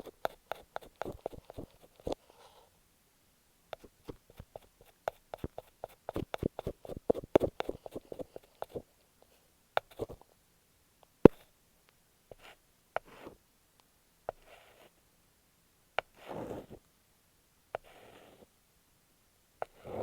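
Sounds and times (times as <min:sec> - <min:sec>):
taps and scratches on tape: 0:00.0 - 0:02.2, 0:03.8 - 0:08.8, 0:09.8 - 0:10.2.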